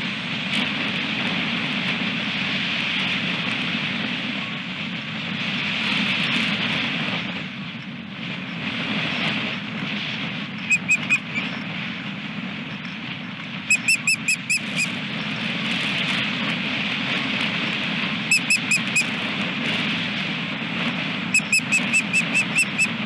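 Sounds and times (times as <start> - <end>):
osprey chirping: 10.6 - 11.6, 13.7 - 15.0, 18.3 - 19.2, 21.4 - 23.0.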